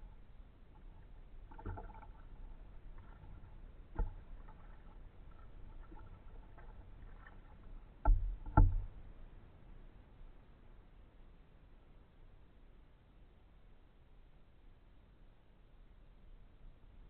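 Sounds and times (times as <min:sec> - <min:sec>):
faint water sounds: 0:00.0 - 0:17.0
paddle knocking against kayak: 0:00.9 - 0:09.0.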